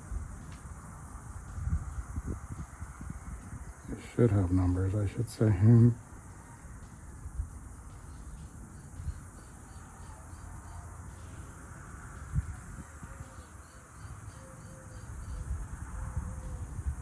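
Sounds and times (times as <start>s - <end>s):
faint insect chirping: 0.0s - 17.0s.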